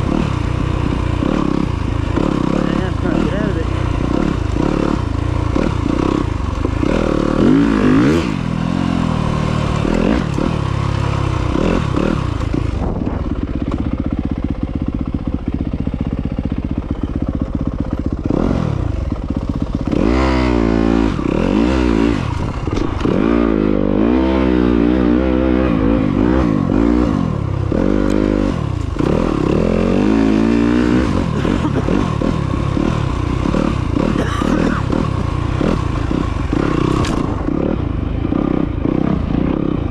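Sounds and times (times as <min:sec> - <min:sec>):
off-road motorcycle engine revving: 0:00.0 - 0:39.9.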